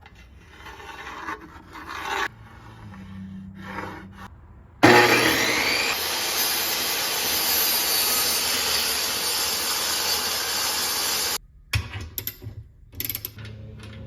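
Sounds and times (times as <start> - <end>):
power tool whirring with hiss: 4.8 - 11.4.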